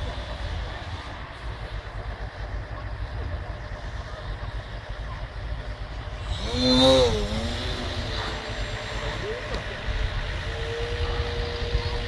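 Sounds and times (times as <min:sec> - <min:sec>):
model airplane motor whining: 0:06.1 - 0:12.0.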